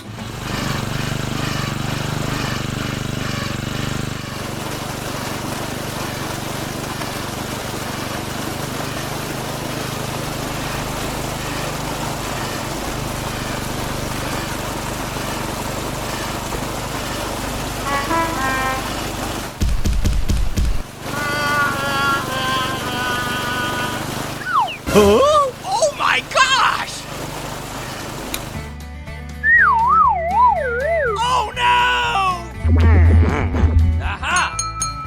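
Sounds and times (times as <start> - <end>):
small motor humming: 0.0 - 19.6, 20.4 - 28.8
even hiss: 17.6 - 19.6, 20.9 - 28.7
short high tones: 24.4 - 26.8.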